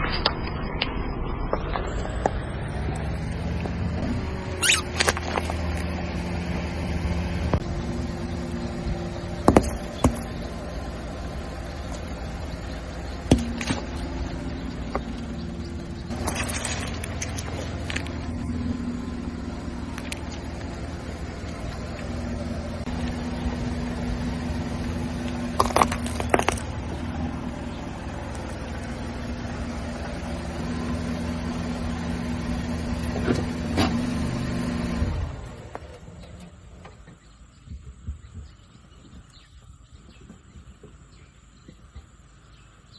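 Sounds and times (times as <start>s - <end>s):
car engine running: 0.0s - 37.6s
cans crushed under tyres: 25.3s - 26.8s.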